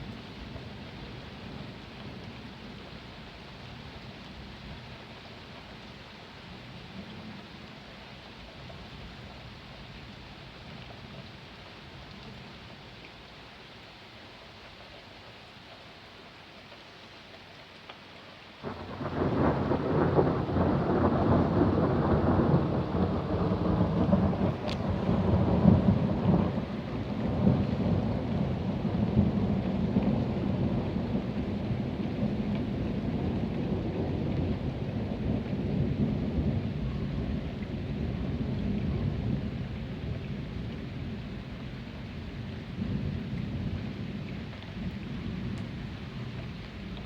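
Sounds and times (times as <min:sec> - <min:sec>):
rain falling: 0:00.0 - 0:47.0
rolling thunder: 0:18.6 - 0:47.0.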